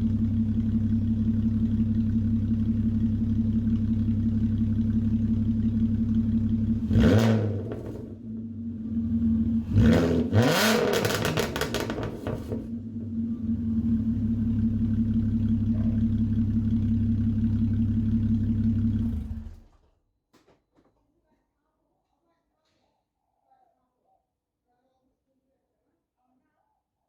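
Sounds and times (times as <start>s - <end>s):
loud car engine idling and revving: 0.0s - 19.7s.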